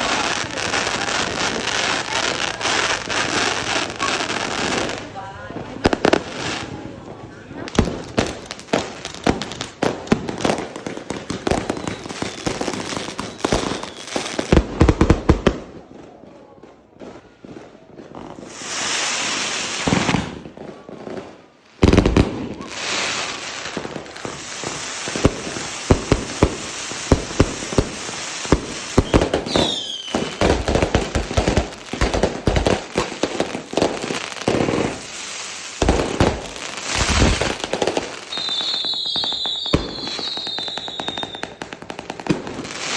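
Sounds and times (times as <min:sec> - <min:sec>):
fireworks crackling and banging: 0:00.0 - 0:42.9
firework falling whistle: 0:11.6 - 0:14.2, 0:28.9 - 0:30.7, 0:38.2 - 0:41.6
firework rushing hiss: 0:18.3 - 0:20.4, 0:21.8 - 0:42.9.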